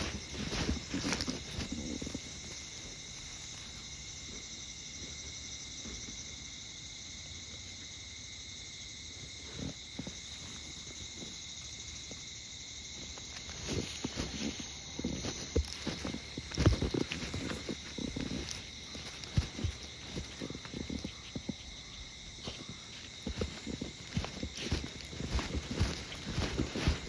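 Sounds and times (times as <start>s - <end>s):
soft footsteps: 0.0s - 6.2s, 9.5s - 27.0s
insects chirring: 0.0s - 27.0s.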